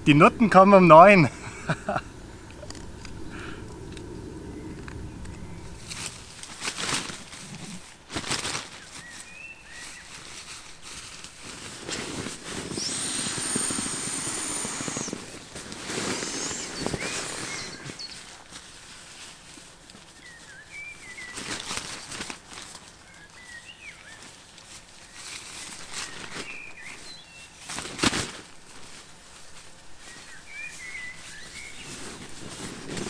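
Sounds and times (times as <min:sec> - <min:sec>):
camp gear rustling: 0:11.4 - 0:19.7, 0:31.8 - 0:33.0.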